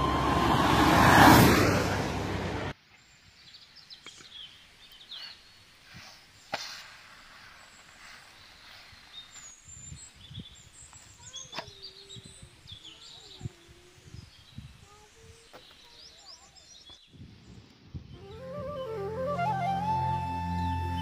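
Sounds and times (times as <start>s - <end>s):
birds chirping: 7.3s - 21.0s.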